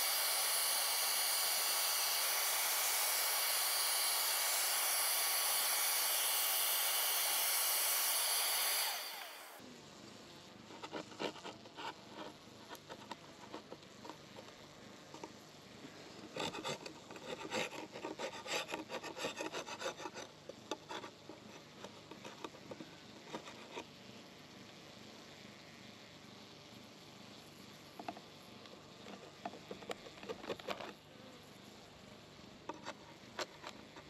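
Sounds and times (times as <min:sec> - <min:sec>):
scraping and rubbing: 0:10.7 - 0:14.5, 0:16.2 - 0:23.9.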